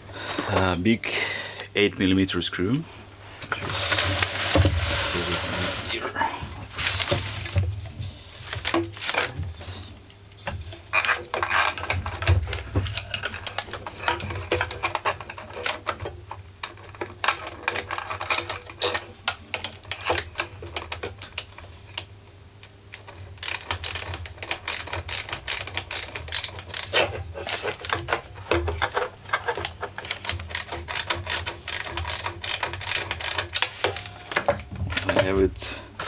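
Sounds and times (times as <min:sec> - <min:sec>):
ratchet wrench clicking: 0:22.9 - 0:27.0, 0:30.4 - 0:33.6.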